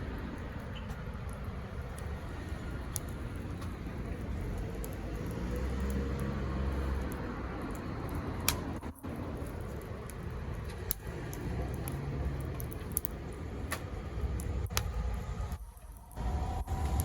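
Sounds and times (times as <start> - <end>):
fire popping: 0.0 - 17.0
wood fire crackling: 0.0 - 17.0
low rumble: 14.1 - 17.0.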